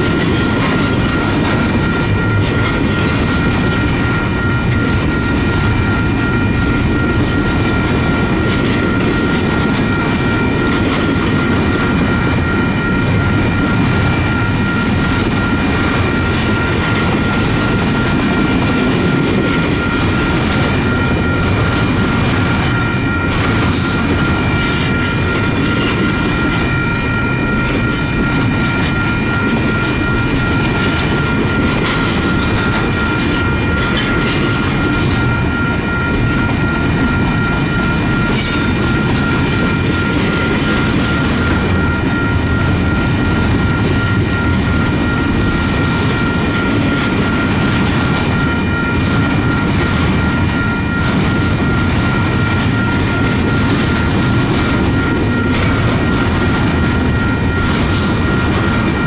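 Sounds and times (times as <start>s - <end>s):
high-pitched tones: 0.0s - 59.0s
train wheels rumbling on rail: 0.0s - 59.0s.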